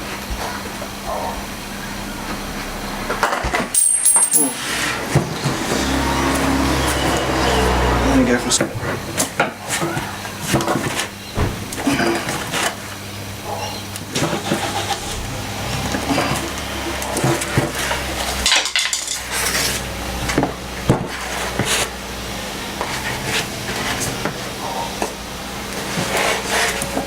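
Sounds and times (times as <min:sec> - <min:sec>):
steady low hum: 0:12.7 - 0:18.5.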